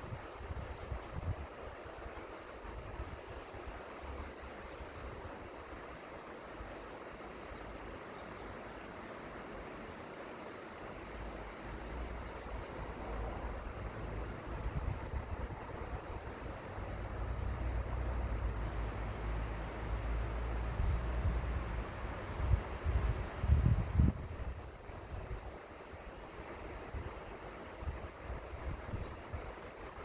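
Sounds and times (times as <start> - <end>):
wind buffeting microphone: 13.5 - 18.3, 22.4 - 25.4.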